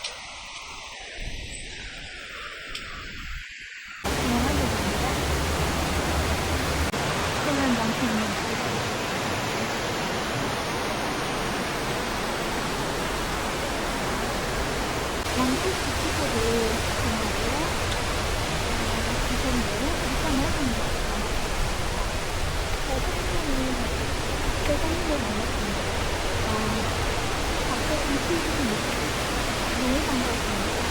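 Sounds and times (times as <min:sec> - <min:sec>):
faint voices: 0:04.1 - 0:08.4, 0:15.2 - 0:21.4, 0:22.7 - 0:30.9
waterfall and stream rushing: 0:04.1 - 0:30.9.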